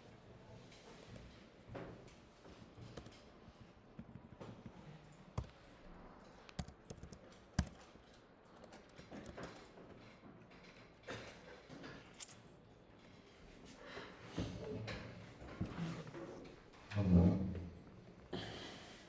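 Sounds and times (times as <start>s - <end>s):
keyboard and mouse clicks: 5.3s - 5.6s, 6.3s - 9.7s.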